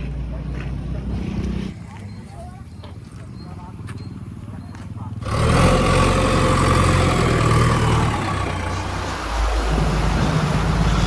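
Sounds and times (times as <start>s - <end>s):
diesel engine running: 2.8s - 11.0s.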